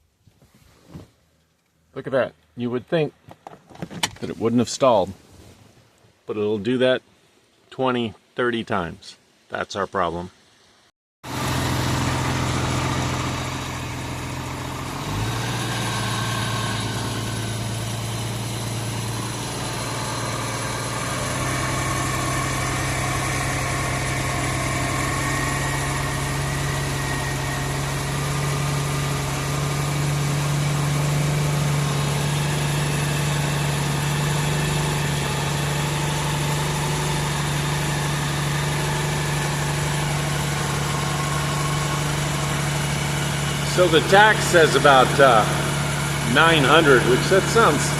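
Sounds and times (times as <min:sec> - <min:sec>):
boat engine idling: 0:11.2 - 0:47.9.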